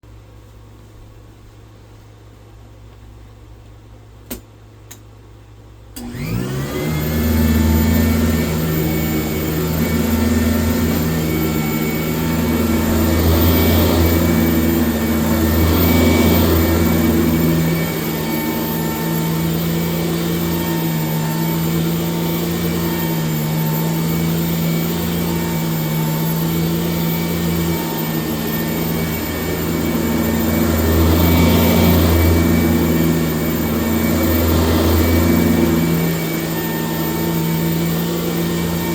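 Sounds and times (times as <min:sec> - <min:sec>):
vacuum cleaner motor whining: 0:06.0 - 0:38.9.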